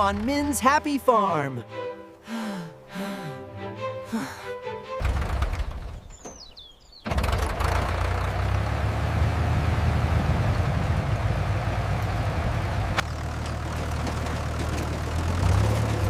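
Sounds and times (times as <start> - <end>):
tractor engine idling: 0.0 - 1.3, 5.0 - 16.0
music: 0.0 - 5.1.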